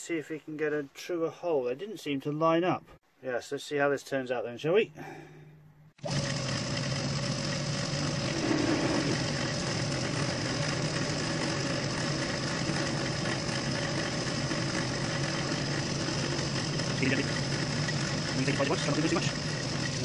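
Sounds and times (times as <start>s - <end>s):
metal lathe humming: 5.0s - 20.0s.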